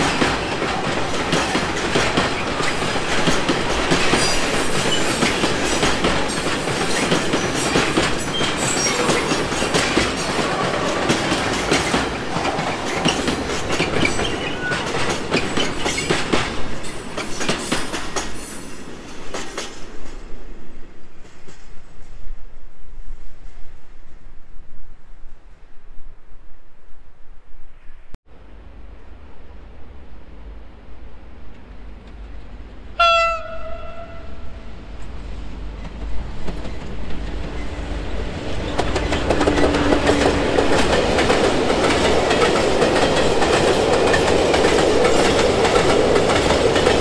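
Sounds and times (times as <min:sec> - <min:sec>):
freight train wheels clattering: 0:00.0 - 0:20.3, 0:35.0 - 0:47.0.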